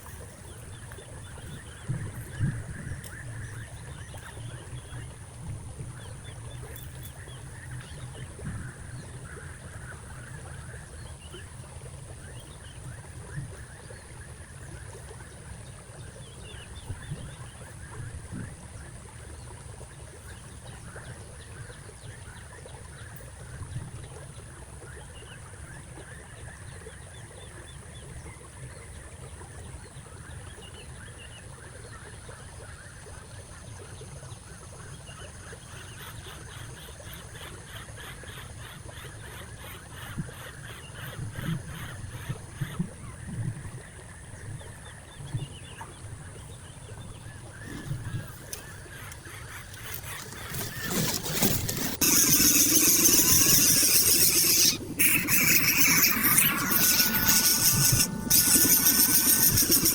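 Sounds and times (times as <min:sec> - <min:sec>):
high-pitched hum: 0:49.9 - 0:59.9.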